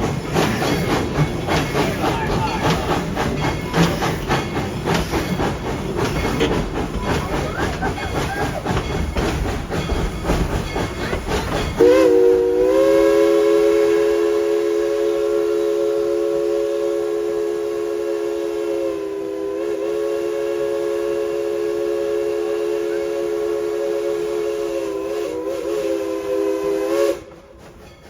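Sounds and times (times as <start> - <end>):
steam locomotive chugging: 0.0 - 28.0
steam chime whistle: 11.6 - 27.3.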